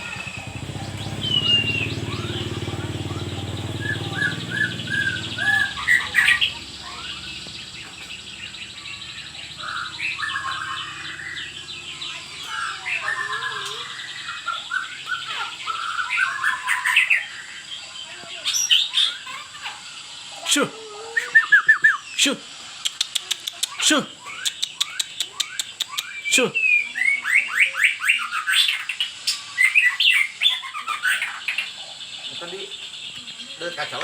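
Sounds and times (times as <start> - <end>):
low motor hum: 0.0 - 16.0
bird singing whistled phrases: 0.0 - 17.6, 21.0 - 31.7.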